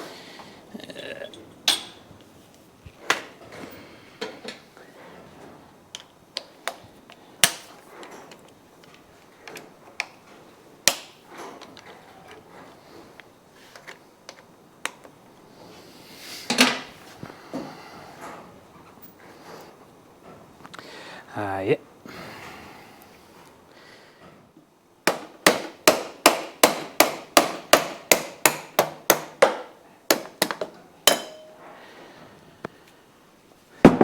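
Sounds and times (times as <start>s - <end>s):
metal tools clinking and knocking: 1.2s - 2.1s, 30.5s - 31.7s.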